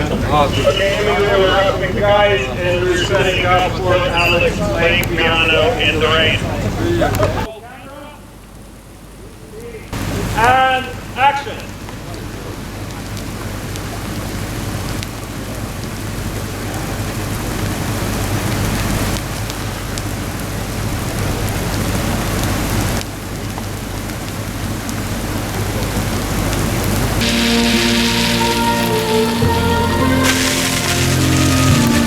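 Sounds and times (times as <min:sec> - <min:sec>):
heavy rain pouring: 0:00.0 - 0:07.4, 0:10.0 - 0:32.0
music with sustained chords: 0:27.2 - 0:32.0.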